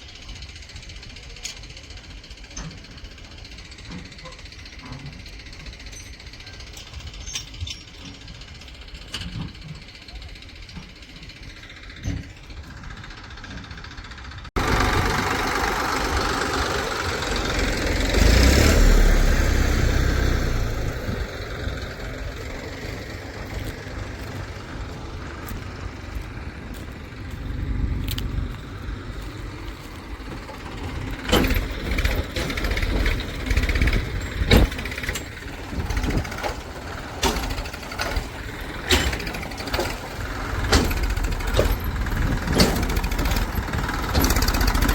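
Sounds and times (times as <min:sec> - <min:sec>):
diesel engine running: 0:00.0 - 0:44.9
sharp metal knocks and clanks: 0:30.3 - 0:44.9.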